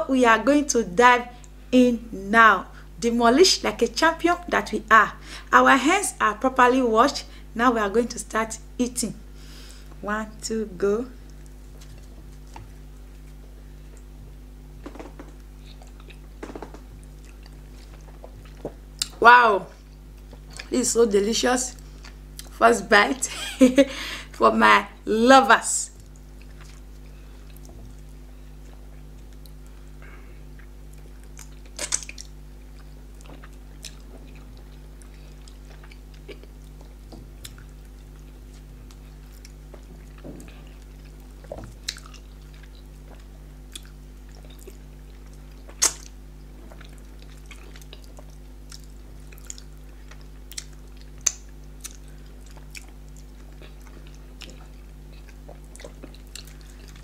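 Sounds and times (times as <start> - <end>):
steady low hum: 0.0 - 57.0
people chewing with wet mouth clicks: 14.9 - 19.2, 21.8 - 22.6, 26.0 - 57.0.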